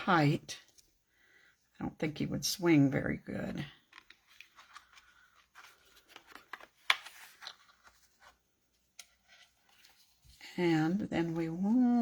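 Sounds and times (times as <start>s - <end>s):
paper rustling: 3.8s - 12.0s.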